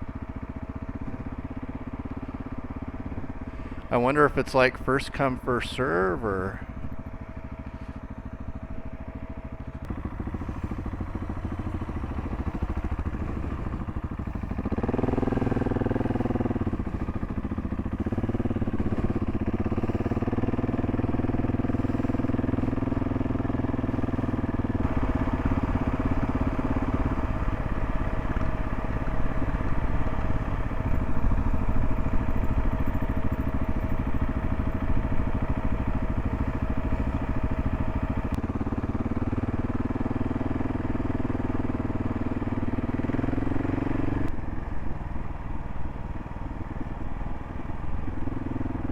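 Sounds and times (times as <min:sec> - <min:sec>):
motorcycle engine running: 0:00.0 - 0:48.9
riding noise: 0:23.9 - 0:38.4.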